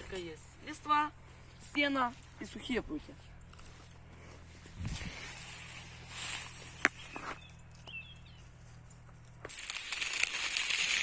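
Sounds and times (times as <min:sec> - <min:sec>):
dry grass and twigs rustling: 0:00.0 - 0:11.0
twig snapping: 0:09.5 - 0:11.0.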